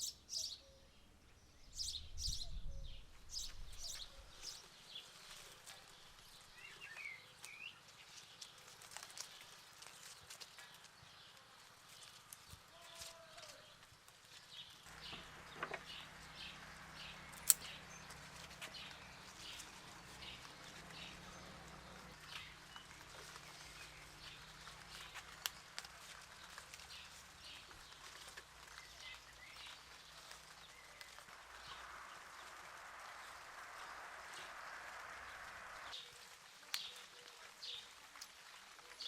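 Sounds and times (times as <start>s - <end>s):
birds chirping: 0.0s - 38.0s
sharp click: 17.4s - 17.8s.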